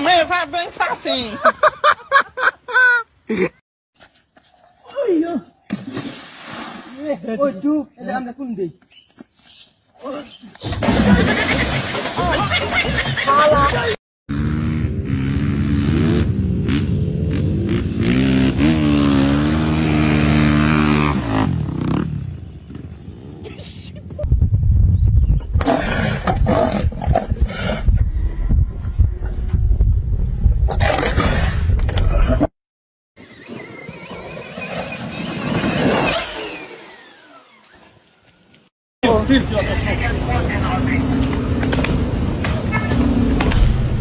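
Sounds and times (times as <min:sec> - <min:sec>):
vehicle passing by: 0:14.3 - 0:23.4.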